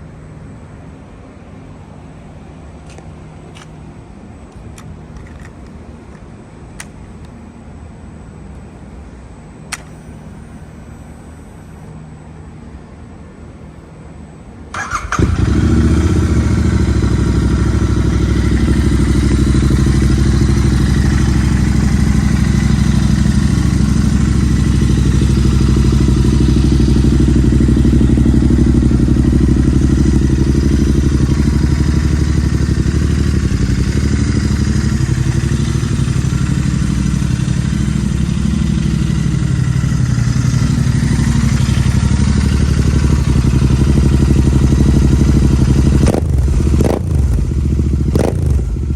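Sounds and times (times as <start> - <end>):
motorcycle engine starting and idling: 9.6 - 11.9, 14.7 - 48.9.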